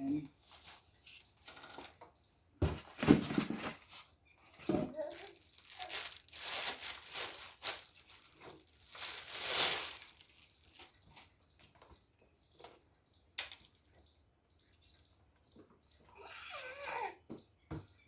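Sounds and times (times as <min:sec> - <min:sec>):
packaging crinkling: 0:04.9 - 0:11.4.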